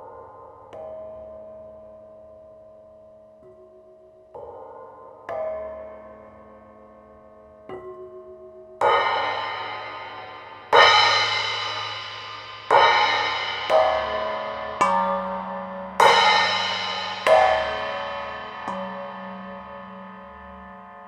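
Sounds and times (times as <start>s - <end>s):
low steady drone: 8.8s - 21.0s
metal percussion crashes ringing: 8.8s - 21.0s.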